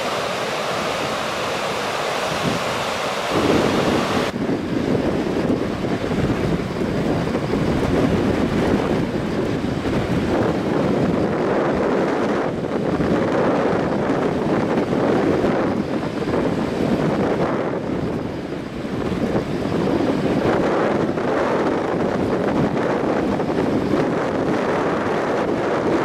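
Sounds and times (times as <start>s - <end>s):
river rushing: 0.0s - 13.2s
wind buffeting microphone: 0.0s - 26.0s.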